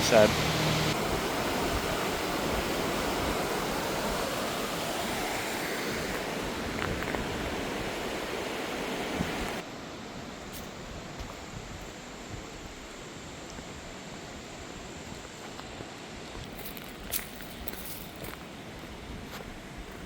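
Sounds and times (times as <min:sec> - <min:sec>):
river rushing: 0:00.0 - 0:11.1.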